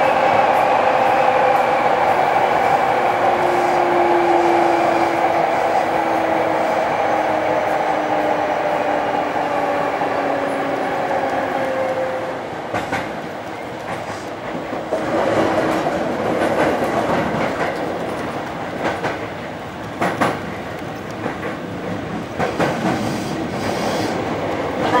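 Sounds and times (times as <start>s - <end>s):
train wheels clattering over joints: 12.7s - 24.9s.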